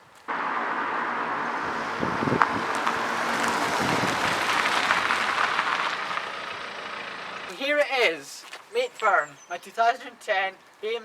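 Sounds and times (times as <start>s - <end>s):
car driving by: 0.3s - 7.6s.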